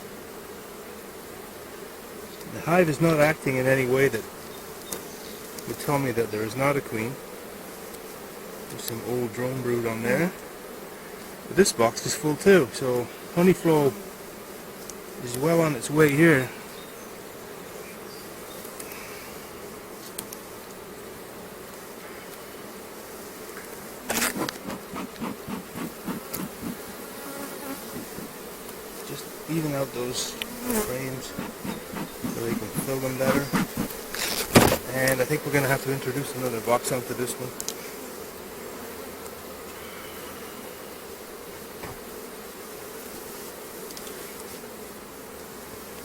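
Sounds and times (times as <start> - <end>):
honeybees buzzing: 0.0 - 46.0
rhythmic thuds: 31.2 - 34.0
sharp knock: 34.5 - 34.8.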